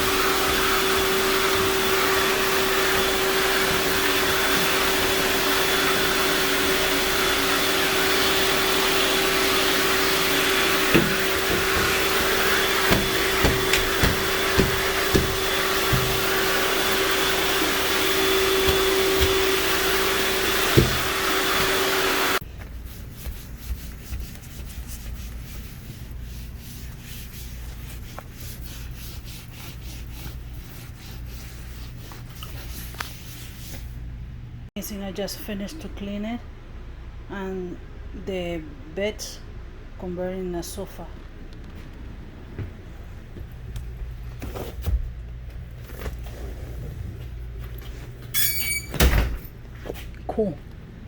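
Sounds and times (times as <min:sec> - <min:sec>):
vacuum cleaner humming: 0:00.0 - 0:22.4
nozzle knocking on surfaces: 0:10.8 - 0:16.8, 0:18.4 - 0:21.7
soft thumps: 0:10.9 - 0:16.4.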